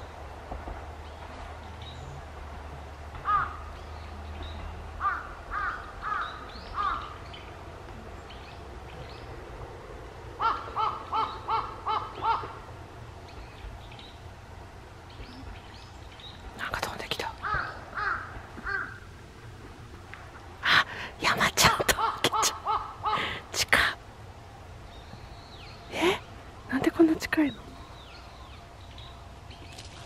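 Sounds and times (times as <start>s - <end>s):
bird calls: 3.2s - 7.5s, 10.4s - 12.7s, 15.1s - 19.1s.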